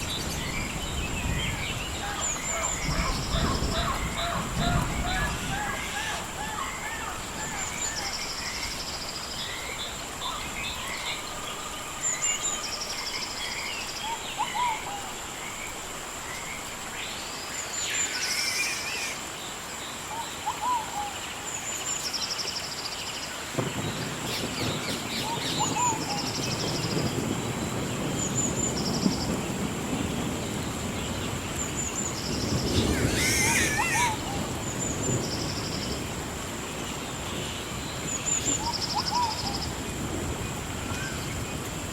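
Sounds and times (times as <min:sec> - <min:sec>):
birds singing and chirping: 0:00.0 - 0:15.2, 0:23.5 - 0:36.0
gentle rain hiss: 0:00.0 - 0:41.9.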